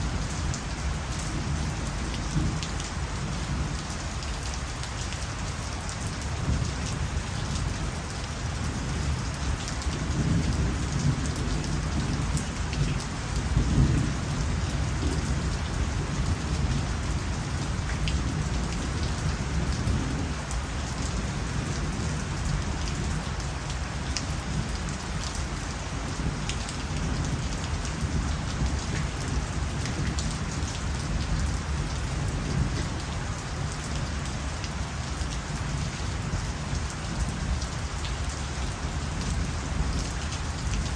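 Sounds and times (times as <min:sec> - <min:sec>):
steady rain falling: 0:00.0 - 0:40.9
low thunder rumble: 0:06.4 - 0:23.5.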